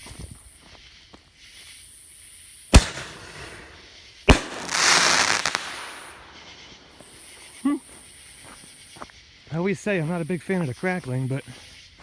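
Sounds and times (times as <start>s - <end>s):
firework crackle: 2.7s - 7.6s
firework shell bangs: 2.8s - 7.1s.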